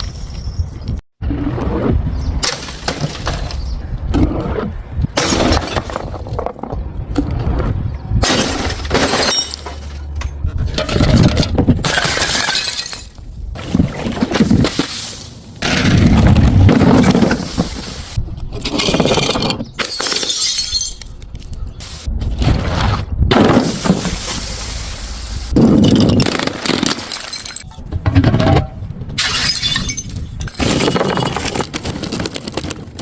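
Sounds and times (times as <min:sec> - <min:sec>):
glass bottles smashing: 0:00.0 - 0:00.9, 0:08.2 - 0:10.1, 0:10.8 - 0:16.1, 0:19.8 - 0:21.2, 0:25.6 - 0:32.5.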